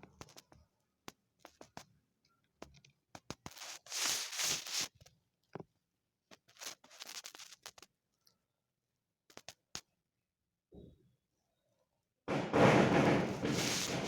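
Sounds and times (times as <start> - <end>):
kittens' paws tapping and scraping: 0.0 - 2.0, 2.6 - 5.7, 6.3 - 7.9, 9.3 - 9.9, 12.3 - 14.0
rustling: 3.5 - 5.0, 6.4 - 7.8, 12.3 - 14.0.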